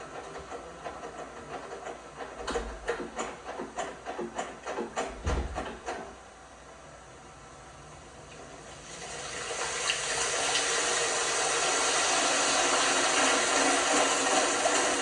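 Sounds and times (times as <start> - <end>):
water rushing into washing machine: 8.4 - 15.0.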